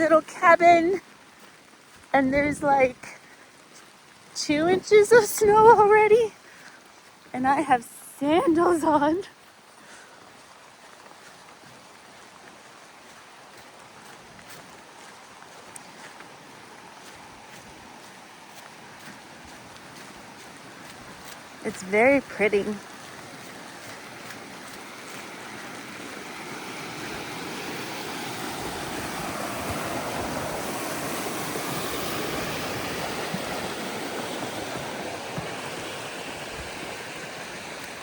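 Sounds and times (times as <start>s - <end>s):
wind and blowing snow: 22.3s - 38.0s.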